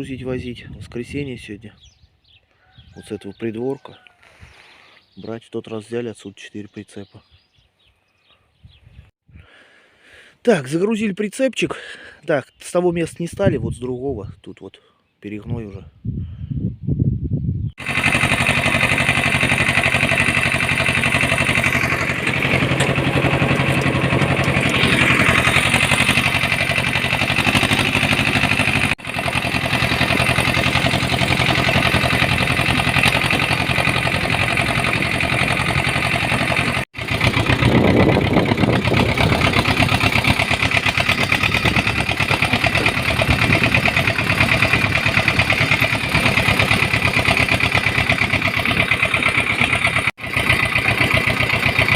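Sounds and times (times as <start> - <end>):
tractor engine running: 17.8 - 51.9.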